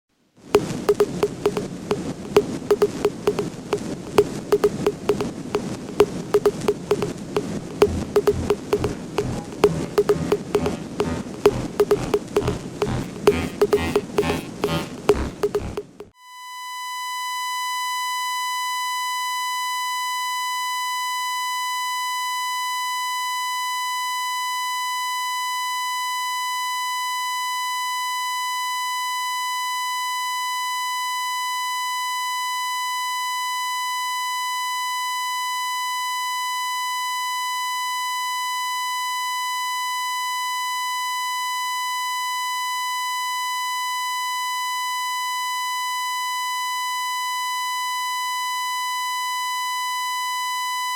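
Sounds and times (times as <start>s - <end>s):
high-pitched electronic tone: 0.9s - 3.5s, 4.1s - 5.3s, 5.9s - 7.1s, 7.7s - 16.1s.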